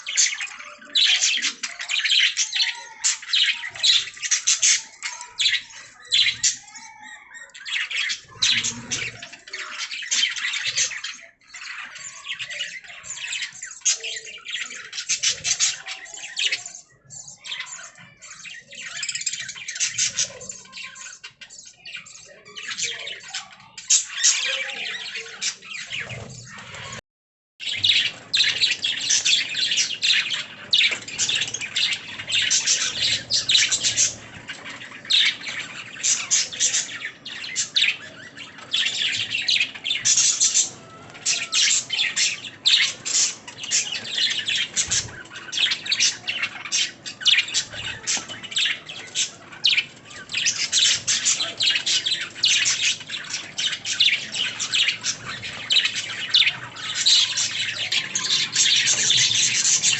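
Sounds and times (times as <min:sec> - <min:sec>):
budgerigars chirping and warbling: 0:00.0 - 0:27.0, 0:27.6 - 0:59.9.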